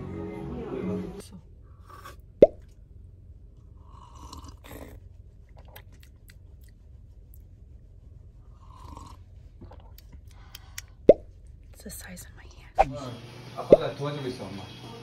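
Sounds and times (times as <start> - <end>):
chewing with crunches: 3.9 - 7.5.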